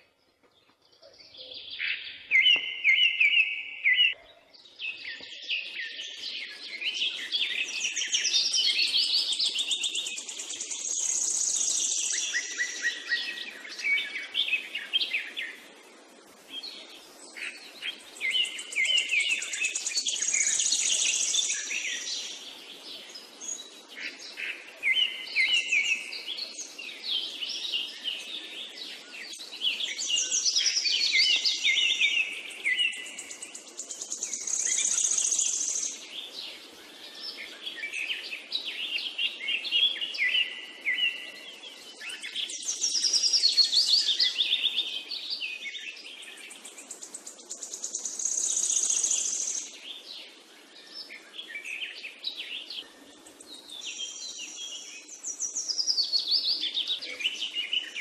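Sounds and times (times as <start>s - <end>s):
birds chirping and trilling: 0.0s - 58.0s.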